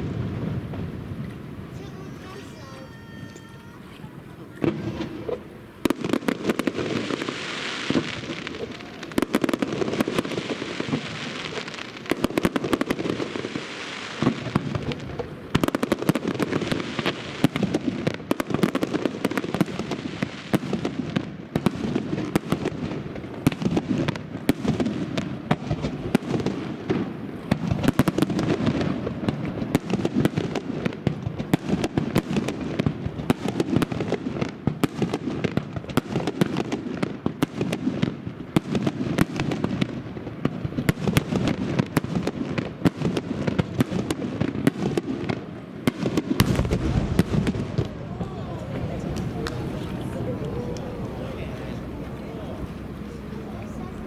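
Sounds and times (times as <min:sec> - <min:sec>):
fireworks hiss: 0:00.0 - 0:29.9, 0:46.1 - 0:47.9
fireworks bangs and crackles: 0:00.0 - 0:54.0.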